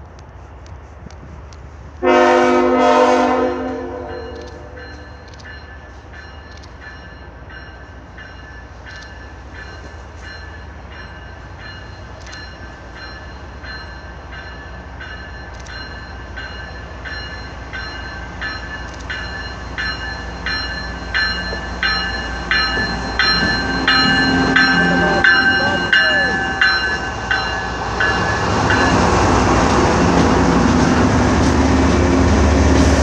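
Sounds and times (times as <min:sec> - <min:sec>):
train rumble: 0:00.0 - 0:33.0
bell ringing evenly: 0:04.1 - 0:29.4.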